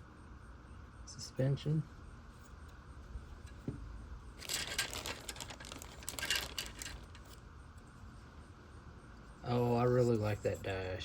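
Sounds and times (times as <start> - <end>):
plastic parts clicking and rustling: 4.4 - 7.4.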